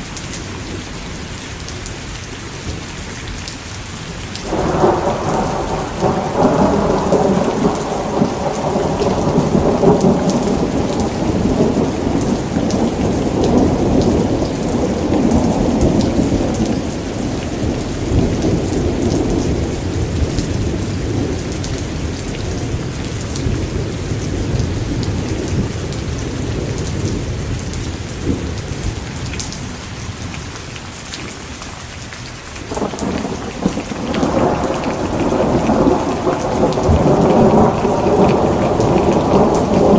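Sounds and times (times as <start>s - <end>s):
steady rain: 0.0s - 39.9s
rolling thunder: 4.5s - 29.2s, 32.7s - 39.9s.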